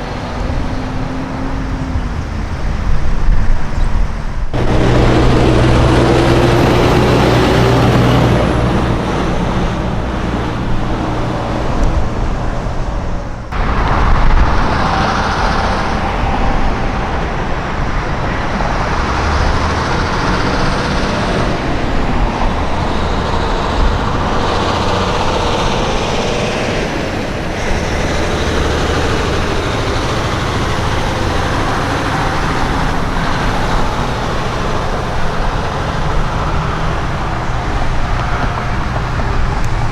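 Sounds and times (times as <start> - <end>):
trucks driving past: 0.0 - 39.9.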